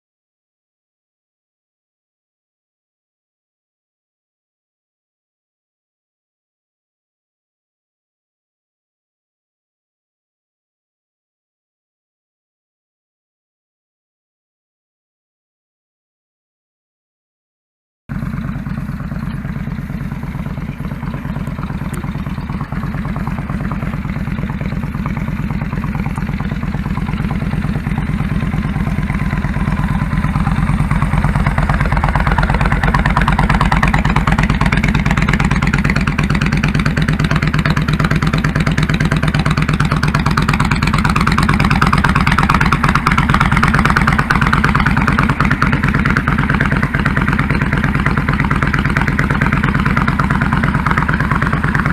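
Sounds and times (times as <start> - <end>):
motorcycle engine running: 18.1 - 51.9.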